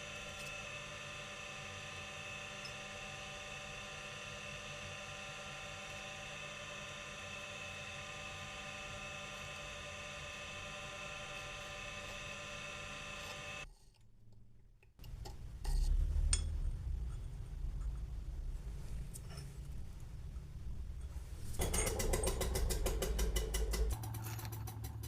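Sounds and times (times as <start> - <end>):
low rumble: 15.4 - 21.9.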